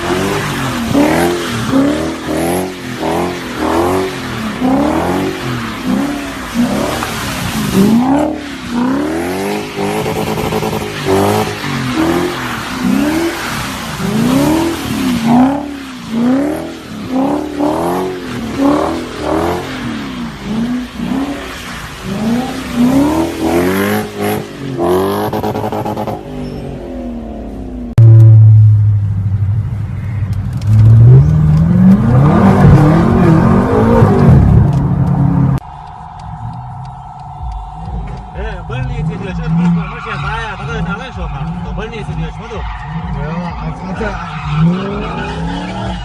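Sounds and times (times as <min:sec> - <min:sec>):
car engine revving: 0:00.0 - 0:46.0
low engine drone: 0:27.2 - 0:39.6.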